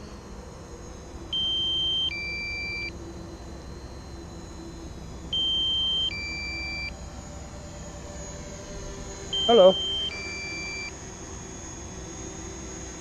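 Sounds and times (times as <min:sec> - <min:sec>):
two-tone electronic alarm beep: 0:01.3 - 0:02.9, 0:05.3 - 0:06.9, 0:09.3 - 0:10.9.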